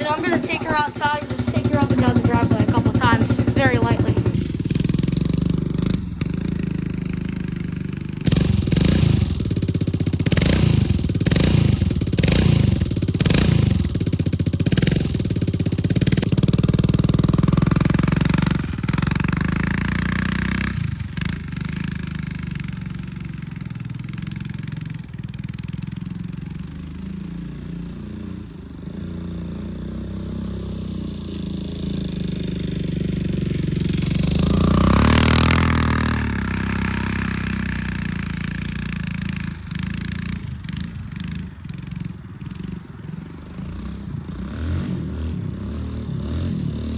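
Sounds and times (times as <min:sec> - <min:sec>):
dirt bike engine revving: 0:00.0 - 0:21.9, 0:27.0 - 0:40.9.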